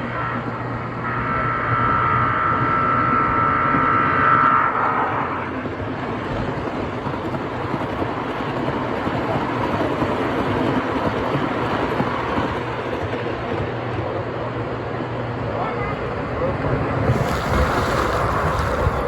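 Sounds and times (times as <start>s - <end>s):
model locomotive horn: 0.0s - 5.5s
model train running: 0.0s - 19.0s.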